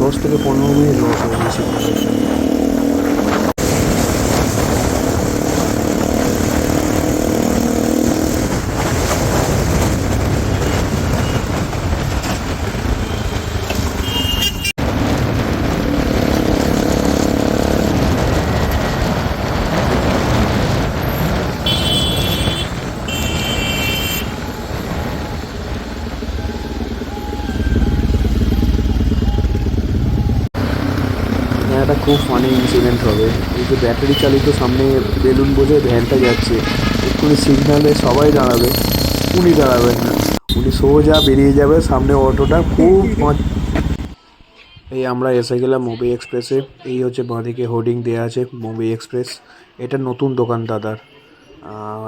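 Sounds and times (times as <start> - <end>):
vehicle horn: 0.0 - 3.0, 13.0 - 14.7, 21.6 - 24.7, 31.7 - 33.4, 34.0 - 34.7, 36.1 - 37.5, 40.4 - 44.0
motorcycle engine running: 0.0 - 44.2
wind and road noise: 0.0 - 44.2.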